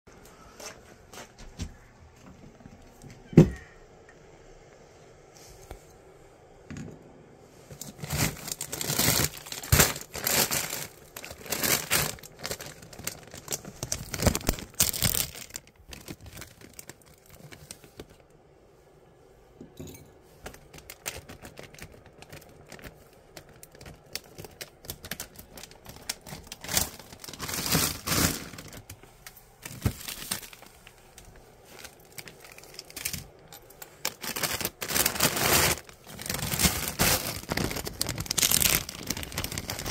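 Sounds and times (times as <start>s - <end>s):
plastic bags crinkling: 7.7s - 18.3s, 20.4s - 39.9s.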